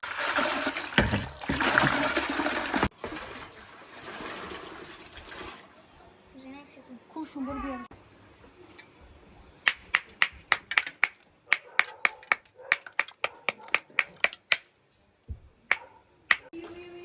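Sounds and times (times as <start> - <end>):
sharp clicks or taps: 9.7 - 14.7, 15.7 - 16.5.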